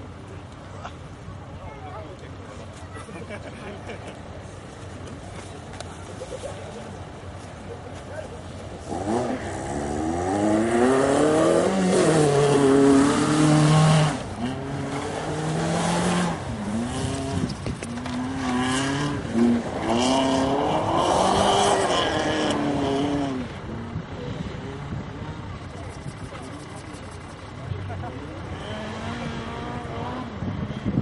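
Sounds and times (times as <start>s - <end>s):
rally car engine revving: 8.6s - 31.0s.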